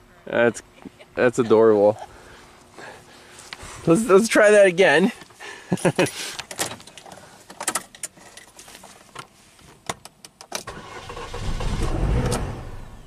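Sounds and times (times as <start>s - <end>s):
car engine starting and rumbling: 10.6s - 13.0s.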